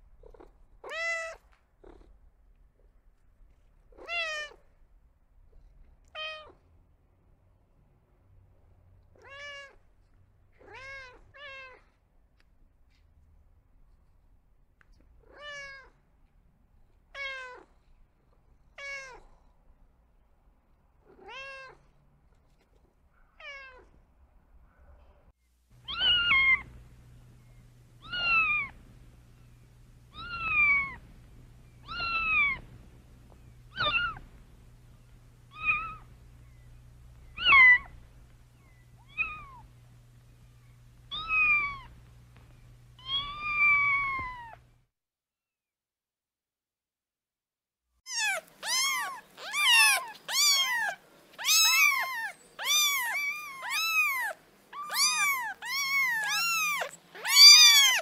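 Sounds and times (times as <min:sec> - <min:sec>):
cat meowing: 0:00.3 - 0:02.0, 0:03.9 - 0:04.6, 0:06.0 - 0:06.6, 0:09.2 - 0:09.8, 0:10.6 - 0:11.9, 0:15.2 - 0:16.0, 0:17.2 - 0:17.7, 0:18.8 - 0:19.3, 0:21.1 - 0:21.8, 0:25.8 - 0:26.8, 0:28.0 - 0:28.8, 0:30.1 - 0:31.0, 0:31.8 - 0:32.7, 0:33.7 - 0:34.2, 0:35.5 - 0:36.1, 0:37.3 - 0:39.7, 0:41.1 - 0:42.0, 0:43.0 - 0:44.6, 0:48.1 - 0:58.0
low steady hum: 0:22.1 - 0:44.9.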